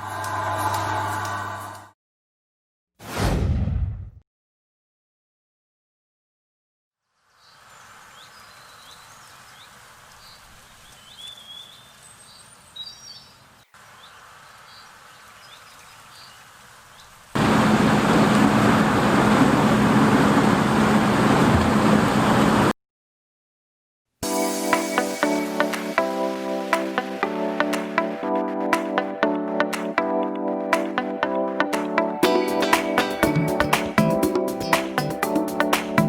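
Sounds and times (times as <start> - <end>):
small birds chirping: 7.3 - 17.3.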